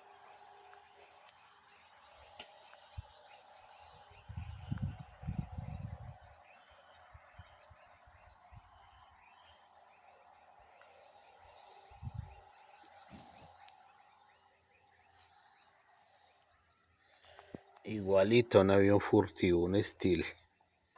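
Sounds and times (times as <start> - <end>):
crickets chirring: 0.0 - 20.9.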